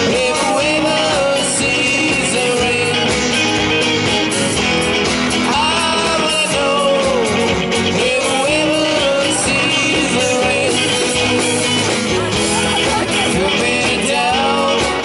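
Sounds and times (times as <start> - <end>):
guitar with pitch bends: 0.0 - 15.0
rock band music: 0.0 - 15.0.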